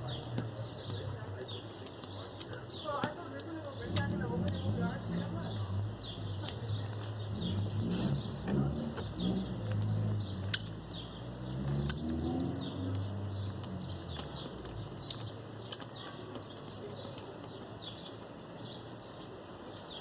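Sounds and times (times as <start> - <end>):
small birds chirping: 0.0 - 20.0
sharp clicks: 9.6 - 11.0, 11.6 - 18.0.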